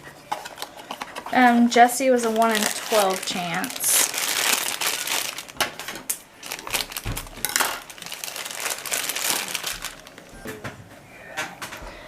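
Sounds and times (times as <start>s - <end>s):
packaging crinkling: 0.4s - 10.4s.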